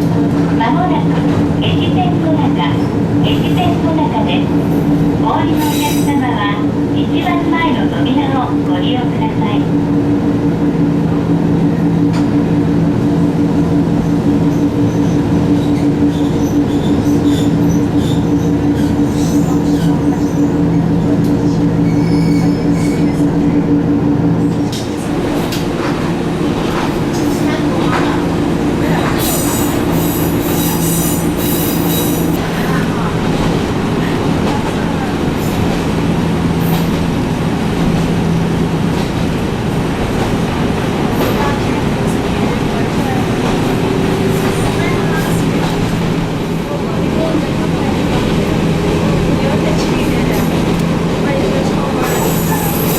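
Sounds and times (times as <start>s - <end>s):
train running gear rumble: 0.0s - 52.9s
wheels squeaking on rails: 4.6s - 6.5s, 14.0s - 23.6s, 24.4s - 38.2s, 38.9s - 52.9s
high-pitched wheel squeal: 21.8s - 23.2s.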